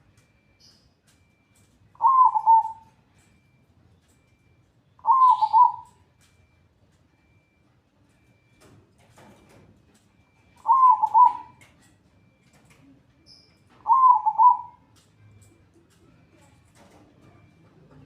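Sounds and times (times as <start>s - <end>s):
dove cooing: 1.9s - 2.9s, 5.0s - 6.0s, 10.3s - 12.4s, 13.7s - 15.4s.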